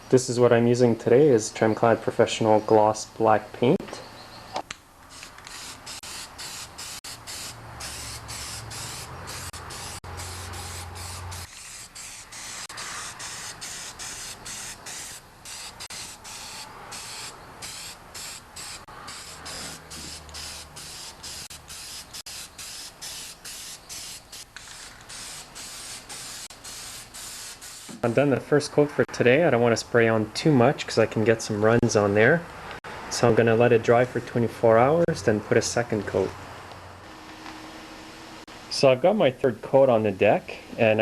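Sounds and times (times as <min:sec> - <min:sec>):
spray paint can hissing in bursts: 0:05.1 - 0:28.1.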